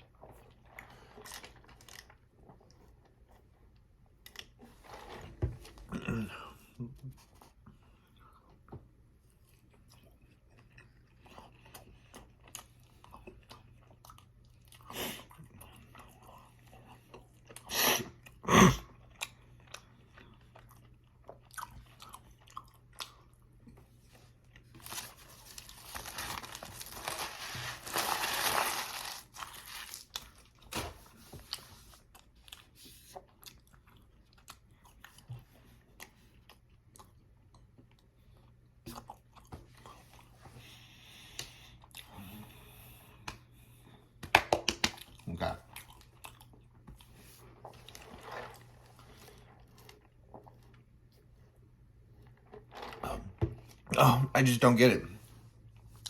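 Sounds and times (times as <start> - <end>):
chewing a burger: 0.0 - 44.2, 44.8 - 52.7.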